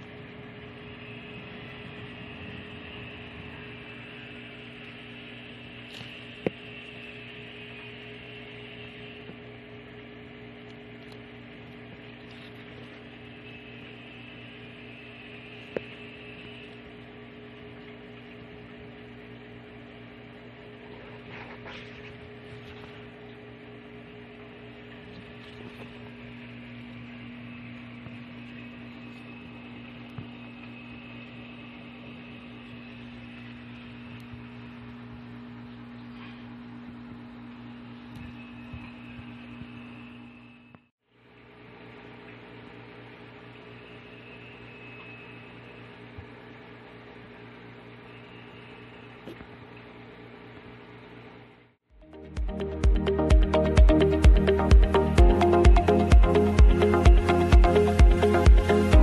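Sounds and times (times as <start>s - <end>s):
low electrical hum: 0.0s - 59.0s.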